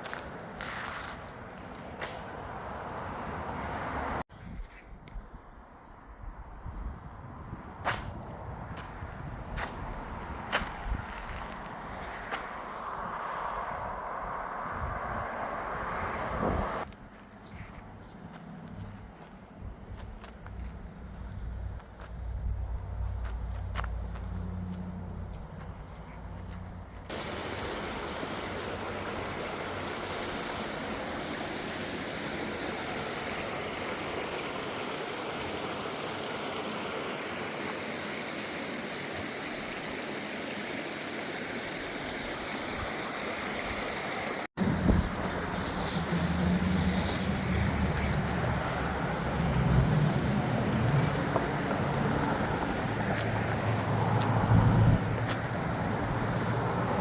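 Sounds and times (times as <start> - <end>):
rushing water: 27.1 - 47.1, 47.8 - 57.0.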